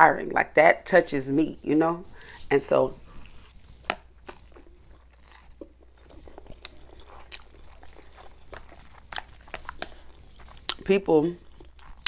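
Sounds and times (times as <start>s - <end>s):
wet chewing smacks and clicks: 3.0s - 12.0s.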